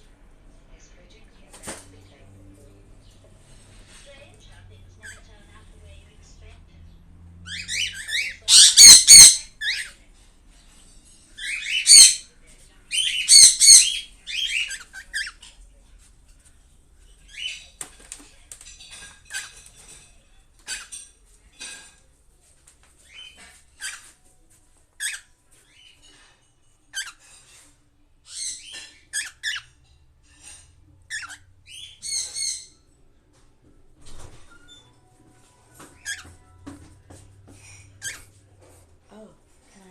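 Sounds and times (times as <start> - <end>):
cockatiels chirping: 7.5 - 10.0, 11.4 - 12.3, 12.9 - 15.5, 25.0 - 26.2, 26.9 - 27.2, 28.3 - 29.8, 30.4 - 32.9, 35.8 - 36.4, 38.0 - 38.4
cockatiels squawking: 7.5 - 10.0, 11.4 - 12.3, 12.9 - 15.5, 25.0 - 26.0, 26.9 - 27.2, 28.3 - 29.8, 31.1 - 32.8, 36.0 - 36.4, 38.0 - 38.4.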